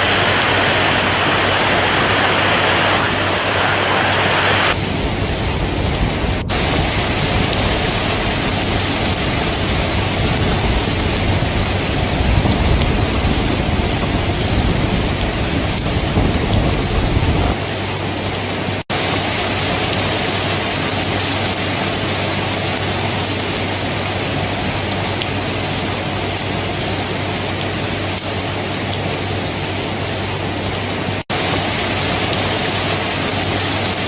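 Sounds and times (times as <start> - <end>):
low rolling thunder rumble: 0.0 - 18.8
heavy rain: 0.0 - 34.0.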